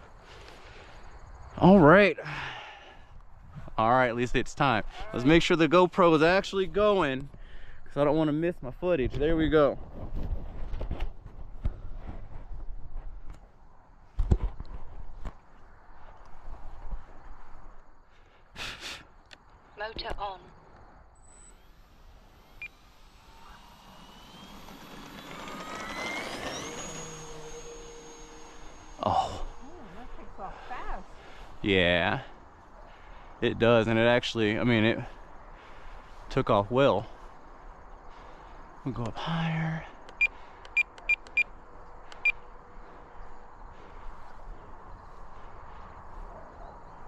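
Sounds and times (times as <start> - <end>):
electric motor and propeller whine: 21.1 - 31.6.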